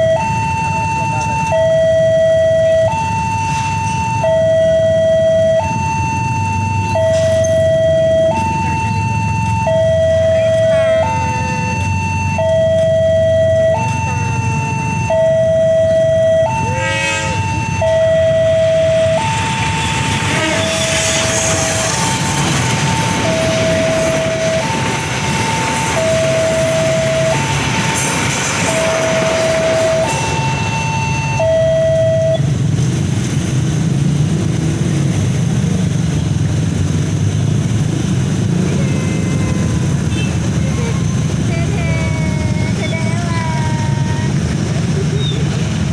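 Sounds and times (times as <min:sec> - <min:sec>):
two-tone level crossing alarm: 0:00.0 - 0:32.5
approaching train: 0:00.0 - 0:45.9
train horn two notes: 0:16.7 - 0:17.5, 0:20.3 - 0:21.6.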